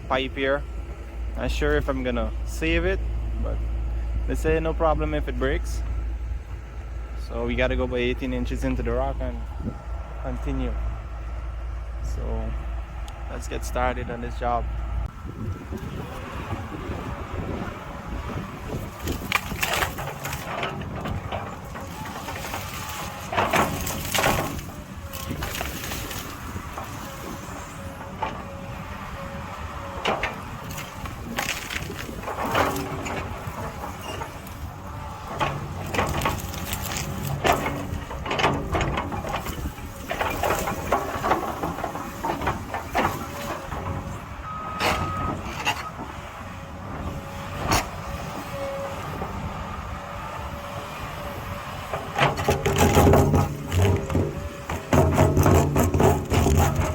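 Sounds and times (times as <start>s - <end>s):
excavator engine and hydraulics: 0.0s - 56.9s
bucket clanking and scraping rock: 18.3s - 29.0s, 29.7s - 46.2s, 51.9s - 56.9s.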